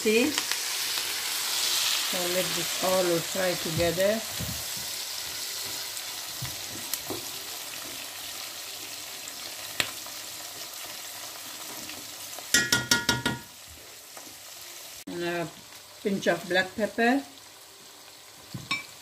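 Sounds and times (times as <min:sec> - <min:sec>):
onions and spices sizzling in oil: 0:00.0 - 0:19.0.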